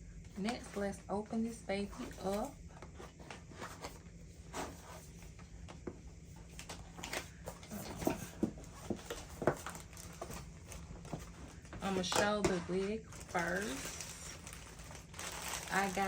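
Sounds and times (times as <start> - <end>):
packaging rustling: 6.4 - 16.0
cardboard box being opened: 6.6 - 11.4.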